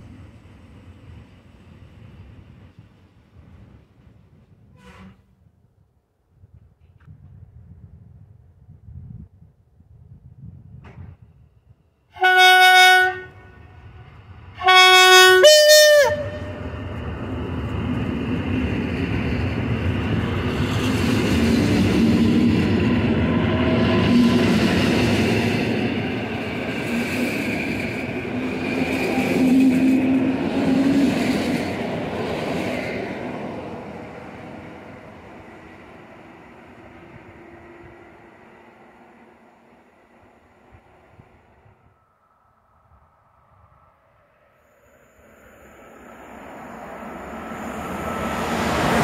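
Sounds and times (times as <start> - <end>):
train horn blasts: 4.7 - 5.3, 12.2 - 16.9.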